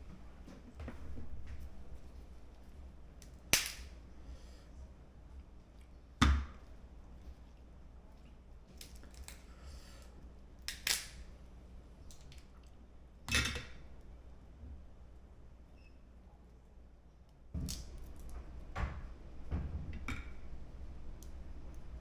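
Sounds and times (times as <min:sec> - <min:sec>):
crab shells cracking: 0:03.3 - 0:03.9, 0:08.8 - 0:09.5, 0:10.6 - 0:11.2.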